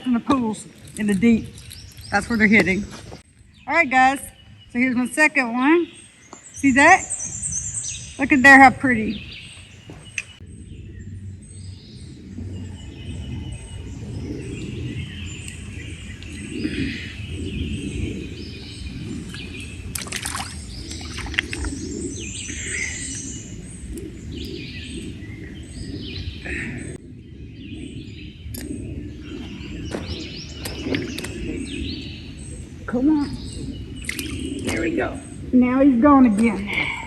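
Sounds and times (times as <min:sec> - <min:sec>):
birds chirping and singing: 0:00.0 - 0:37.0.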